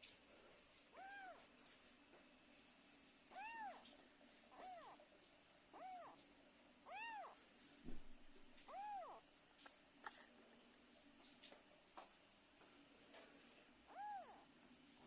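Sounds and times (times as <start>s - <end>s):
cat meowing: 0.9s - 1.5s, 3.3s - 3.9s, 4.5s - 5.0s, 5.7s - 7.4s, 8.6s - 9.2s, 13.9s - 14.5s.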